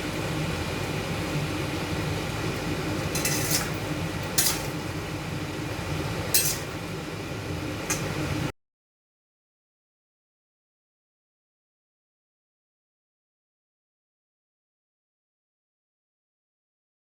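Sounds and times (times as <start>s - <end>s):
steady low hum: 0.0s - 8.5s
utensil scraping a pot: 3.1s - 4.8s.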